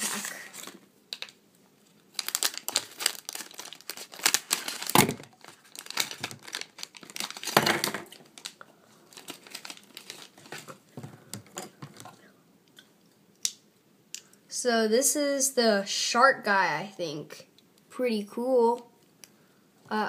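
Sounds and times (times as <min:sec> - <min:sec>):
plastic bag crinkling and tearing: 0:00.0 - 0:10.8.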